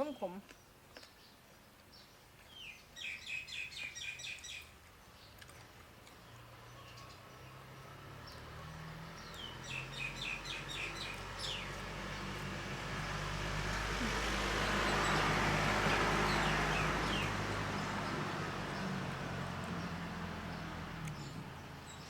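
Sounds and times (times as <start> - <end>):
bird chirping: 0.0 - 19.0
vehicle passing by: 6.2 - 22.0.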